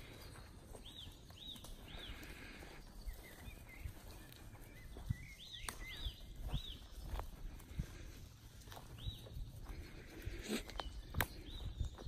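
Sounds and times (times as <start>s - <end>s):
footsteps in grass: 0.0s - 12.0s
songbird whistling: 3.0s - 7.2s.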